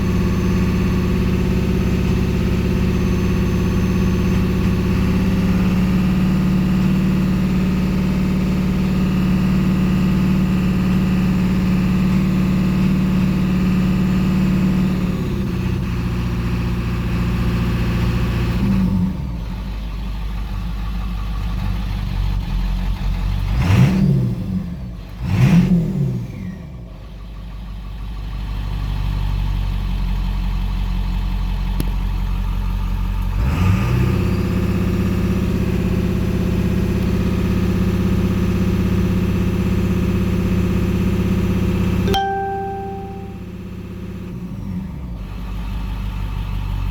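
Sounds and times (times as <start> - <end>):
diesel engine idling and revving: 0.0 - 42.0, 44.4 - 46.9.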